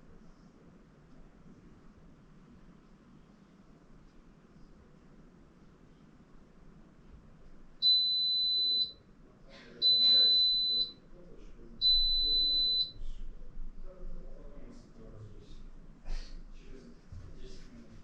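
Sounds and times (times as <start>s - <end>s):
washing machine high beeps: 7.8s - 9.0s, 9.8s - 11.0s, 11.8s - 13.0s.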